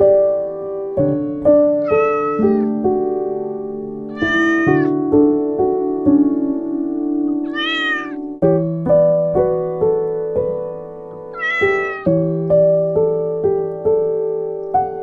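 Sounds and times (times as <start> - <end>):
piano music: 0.0 - 15.0
cat meowing: 1.7 - 2.8, 4.1 - 5.0, 7.4 - 8.3, 11.3 - 12.2.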